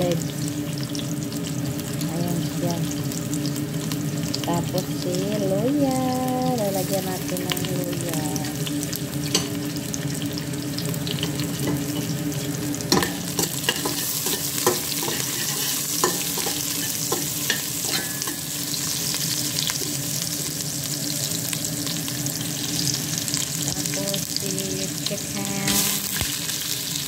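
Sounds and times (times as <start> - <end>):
food sizzling in hot oil: 0.0 - 27.0
spatula scraping a metal pot: 12.9 - 18.5.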